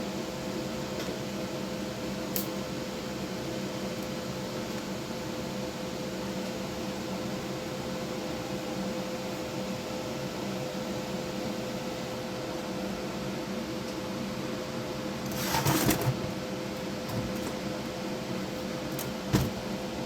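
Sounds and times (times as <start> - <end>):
electrical hum: 14.5 - 20.0.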